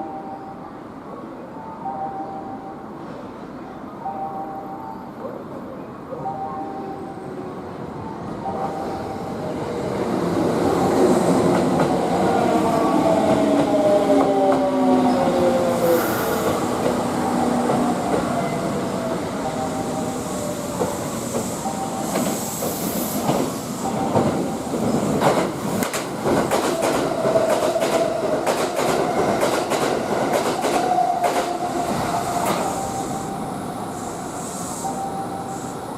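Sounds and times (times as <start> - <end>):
train wheels clicking on rail joints: 20.7 - 31.7.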